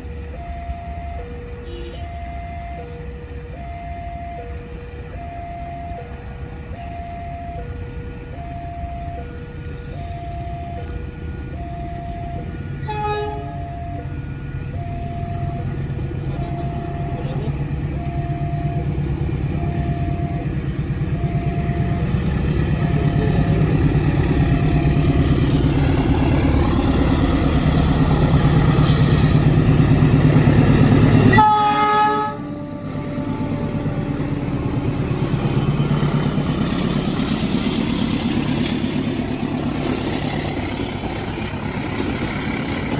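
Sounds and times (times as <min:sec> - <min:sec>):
level crossing two-tone warning signal: 0:00.0 - 0:42.9
train rumble: 0:00.0 - 0:42.9
train horn: 0:01.6 - 0:02.1, 0:12.8 - 0:13.8, 0:31.3 - 0:35.0.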